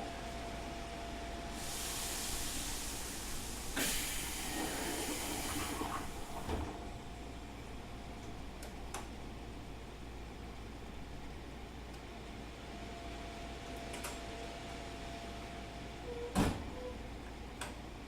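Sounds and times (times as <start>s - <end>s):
compressed air hissing: 1.6s - 6.4s.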